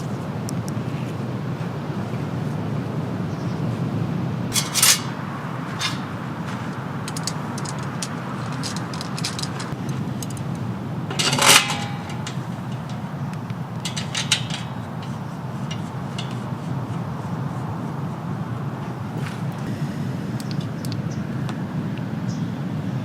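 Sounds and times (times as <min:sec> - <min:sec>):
metallic clink: 0:04.5 - 0:17.6
camp cookware clicking: 0:04.5 - 0:18.0, 0:20.3 - 0:21.2.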